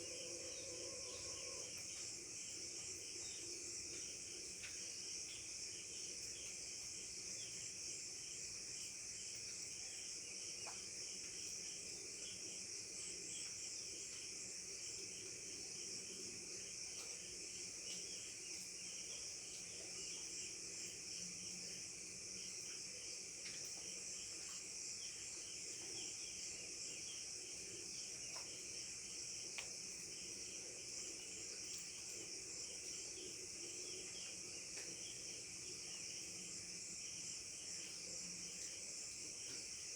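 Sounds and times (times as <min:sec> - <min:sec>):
crickets and insects trilling: 0:00.0 - 0:39.9
faint ticks: 0:01.4 - 0:02.2, 0:03.3 - 0:05.6, 0:10.5 - 0:11.8, 0:16.8 - 0:20.3, 0:22.4 - 0:26.3, 0:28.0 - 0:28.8, 0:29.4 - 0:30.0, 0:34.1 - 0:35.2, 0:37.7 - 0:39.9.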